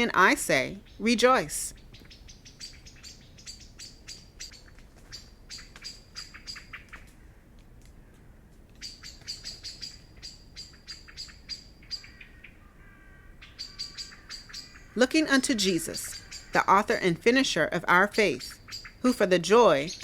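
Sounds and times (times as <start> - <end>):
songbirds chirping: 0.0 - 20.0
lower warbling bird call: 8.8 - 20.0.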